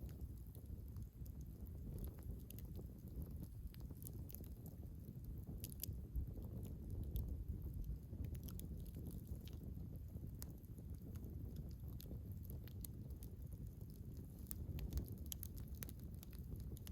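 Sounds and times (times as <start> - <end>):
campfire logs crackling: 0.0 - 16.9
low steady rumble: 0.0 - 16.9.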